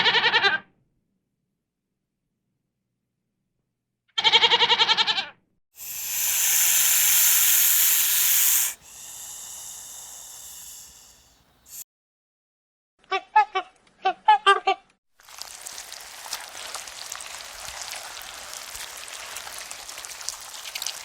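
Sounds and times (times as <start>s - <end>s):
young animal bleating: 0.0s - 0.6s, 4.2s - 5.3s
loud hiss: 5.8s - 11.8s.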